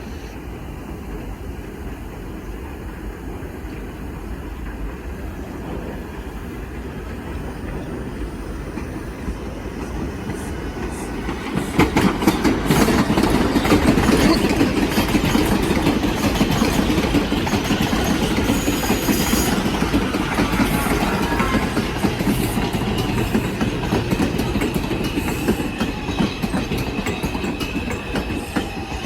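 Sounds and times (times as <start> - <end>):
high wheel squeal: 10.0 - 29.0
wheels clattering over rail joints: 11.3 - 29.0.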